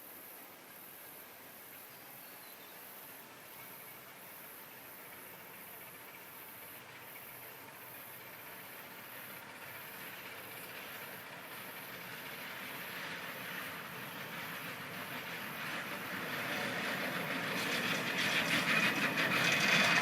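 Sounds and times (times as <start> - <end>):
hiss of steam: 0.0 - 20.0
steam locomotive approaching: 0.0 - 20.0.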